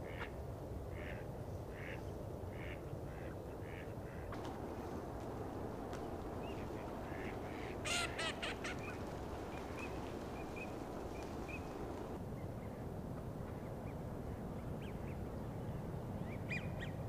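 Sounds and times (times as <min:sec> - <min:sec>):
steady background rush: 0:04.3 - 0:12.2
small birds chirping: 0:04.4 - 0:12.2.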